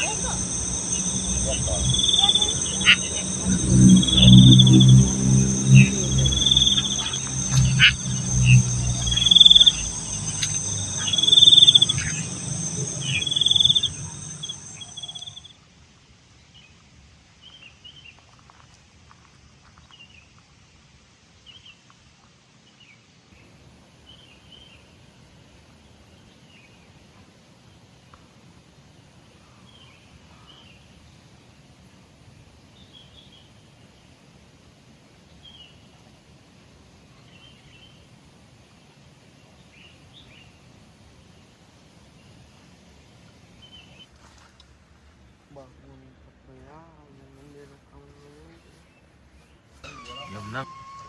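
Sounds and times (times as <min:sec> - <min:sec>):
crickets shrilling: 0:00.0 - 0:15.4
low hum: 0:00.0 - 0:15.4
high insect chirp: 0:00.0 - 0:15.5.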